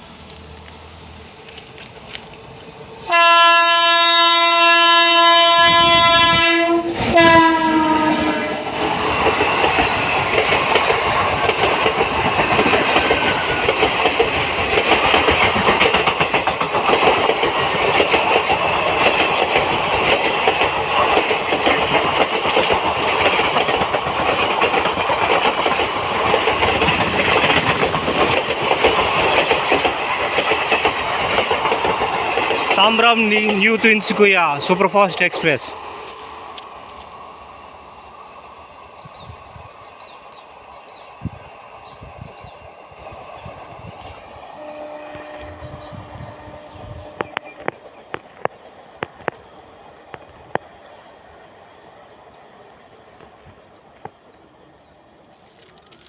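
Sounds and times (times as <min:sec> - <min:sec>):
train coaches rumbling and clattering: 0:00.0 - 0:56.0
locomotive horn: 0:03.1 - 0:09.2, 0:44.6 - 0:47.6.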